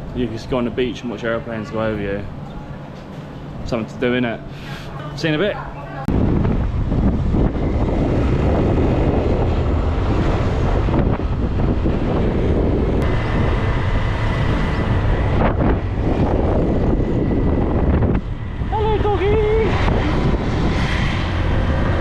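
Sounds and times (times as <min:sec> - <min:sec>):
wind buffeting microphone: 0:05.5 - 0:22.0.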